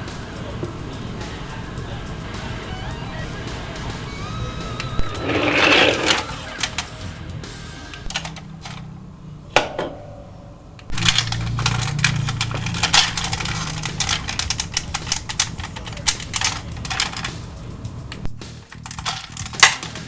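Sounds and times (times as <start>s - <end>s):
low steady hum: 0.0s - 20.0s
plastic toy parts clattering: 5.0s - 7.2s, 7.9s - 9.0s, 10.9s - 20.0s.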